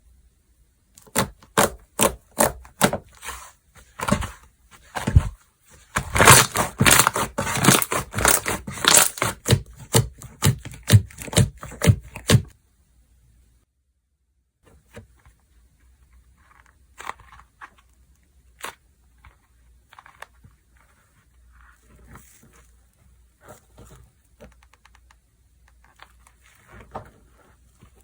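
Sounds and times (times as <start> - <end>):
slime squishing and popping: 6.1 - 12.4.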